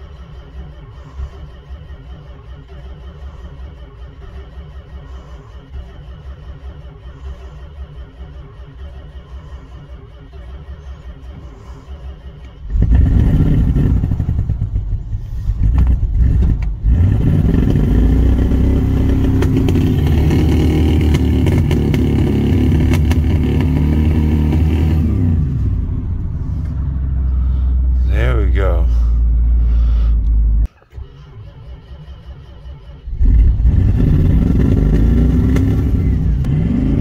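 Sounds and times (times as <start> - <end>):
car engine starting and revving: 0.0 - 37.0.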